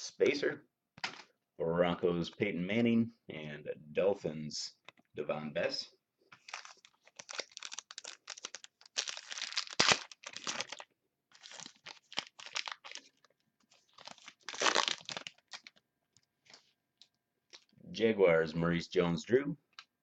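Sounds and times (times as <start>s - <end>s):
cards rustling: 6.3s - 15.8s
foil wrapper tearing and crinkling: 6.4s - 15.8s.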